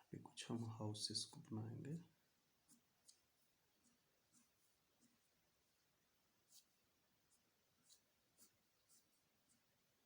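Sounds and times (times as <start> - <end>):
pencil scratching on paper: 2.6 - 10.0.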